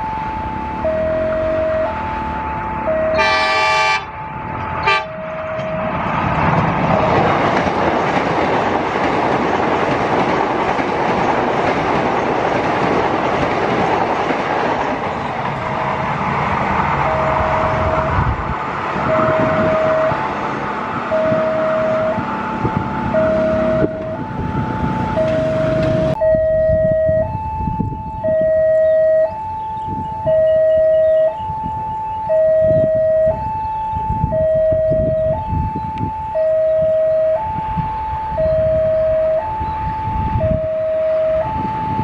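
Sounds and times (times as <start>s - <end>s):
two-tone crossing alarm: 0.0s - 6.2s, 16.9s - 42.0s
train horn: 0.3s - 5.9s, 17.1s - 18.3s, 19.1s - 20.2s, 21.3s - 22.3s
train wheels rumbling on rails: 0.4s - 28.3s.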